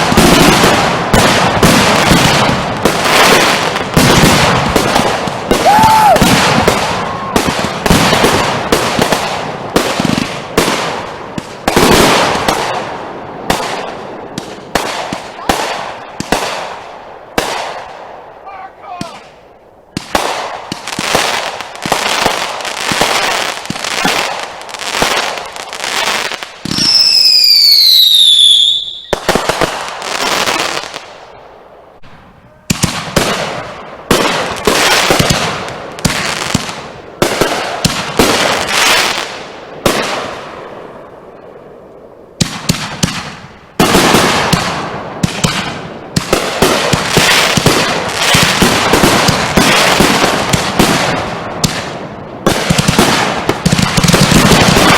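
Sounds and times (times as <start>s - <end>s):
fireworks bangs: 0.0s - 54.9s
firework whistle gliding down: 26.7s - 29.3s.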